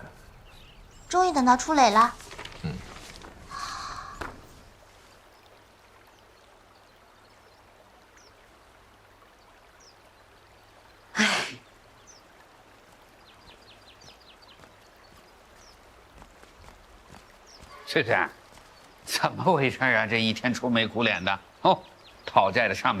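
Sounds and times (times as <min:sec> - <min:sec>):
faint outdoor ambience: 0:00.0 - 0:23.0
high bird chirps: 0:16.6 - 0:19.1.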